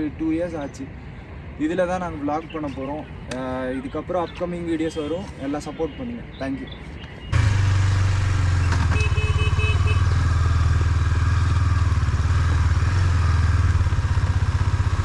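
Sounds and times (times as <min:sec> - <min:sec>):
motorcycle engine running: 0:07.3 - 0:15.0.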